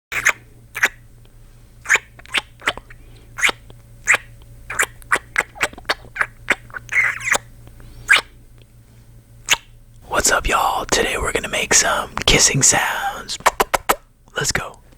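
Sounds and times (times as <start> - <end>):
man making smacking kisses: 0.1 - 1.0, 1.8 - 8.3, 9.5 - 10.3, 13.3 - 14.8.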